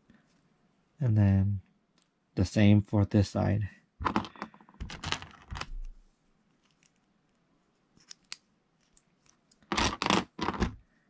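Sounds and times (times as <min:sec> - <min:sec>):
rattle of plastic pieces: 0:04.0 - 0:05.8, 0:09.6 - 0:10.8
plastic bricks clicking: 0:08.0 - 0:10.8.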